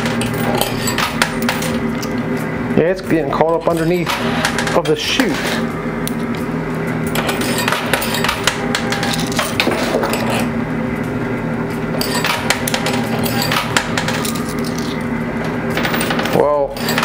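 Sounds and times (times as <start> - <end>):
coins clinking: 0.0 - 1.8, 7.1 - 10.5, 12.0 - 15.1, 15.7 - 17.0
arcade machines humming: 0.0 - 17.0.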